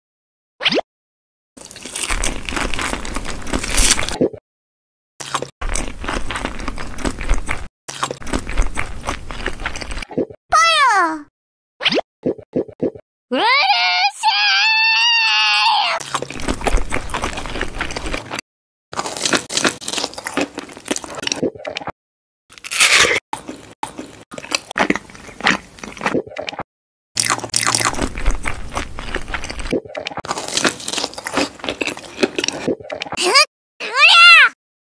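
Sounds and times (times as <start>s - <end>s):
crunchy bites: 1.6s - 4.2s, 5.2s - 10.0s, 16.0s - 18.4s, 19.0s - 21.8s, 22.5s - 26.6s, 27.2s - 33.2s
wet squishy chewing: 1.6s - 4.2s, 5.2s - 10.3s, 16.0s - 18.4s, 19.0s - 21.9s, 22.5s - 33.2s.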